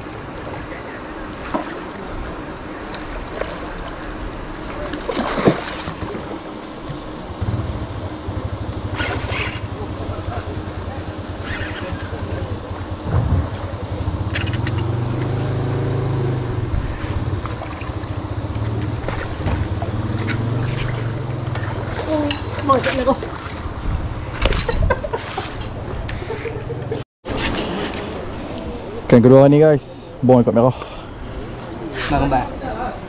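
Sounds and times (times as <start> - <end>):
fish splashing at surface: 4.9 - 6.3.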